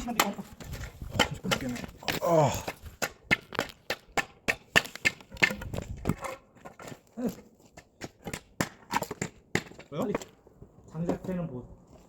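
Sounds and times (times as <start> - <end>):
wooden knocks and clacks: 0.0 - 10.4.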